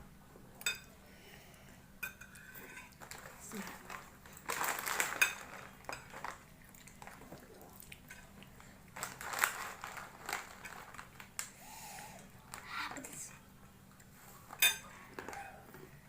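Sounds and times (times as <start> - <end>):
utensils clinking against bowl: 2.0 - 6.4, 14.5 - 15.5.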